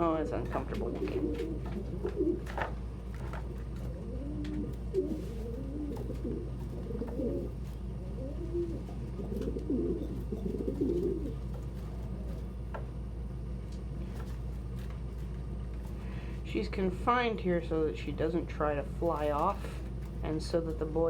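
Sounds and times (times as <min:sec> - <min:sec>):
pigeons cooing: 0:00.0 - 0:14.4.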